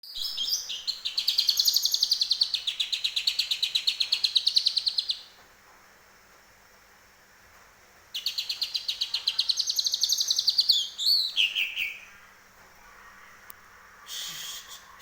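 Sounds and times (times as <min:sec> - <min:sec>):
bird singing high chirps: 0:00.0 - 0:05.3, 0:08.2 - 0:12.1.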